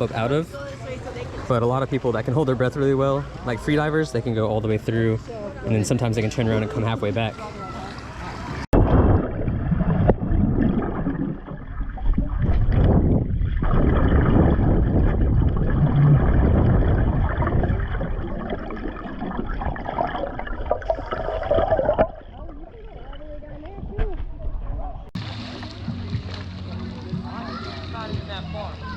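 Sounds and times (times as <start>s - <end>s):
muffled underwater gurgling: 8.8s - 27.1s.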